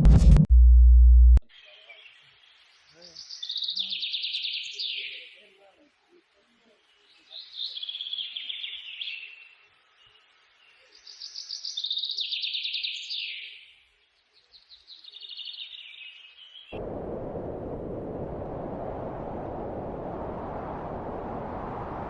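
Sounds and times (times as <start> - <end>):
steady rushing noise: 16.8 - 22.0.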